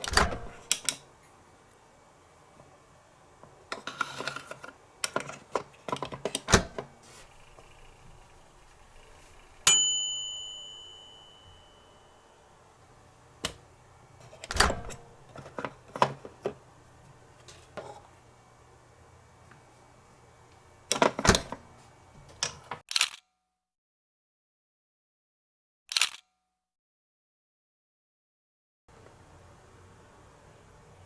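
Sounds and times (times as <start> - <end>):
bell-like ding: 9.7 - 12.0.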